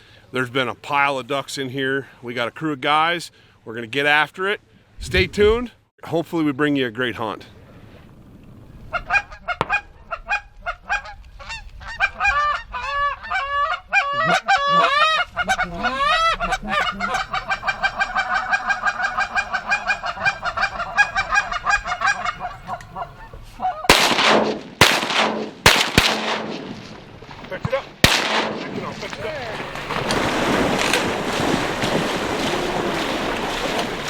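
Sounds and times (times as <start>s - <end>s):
geese honking: 8.9s - 26.7s
shotgun blasts: 23.9s - 27.0s, 28.0s - 29.2s.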